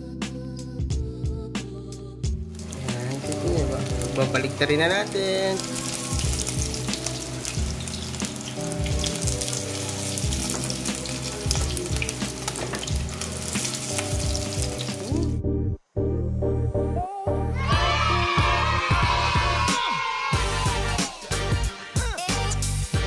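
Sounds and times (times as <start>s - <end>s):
food sizzling in hot oil: 2.5s - 15.3s.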